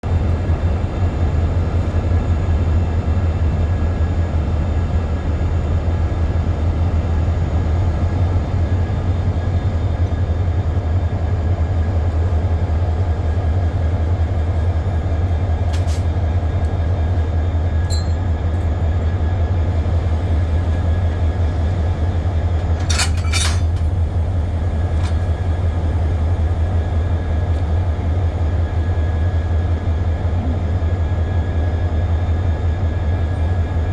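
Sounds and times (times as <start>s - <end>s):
diesel locomotive engine droning: 0.0s - 33.9s
short metallic clinks: 22.8s - 23.8s.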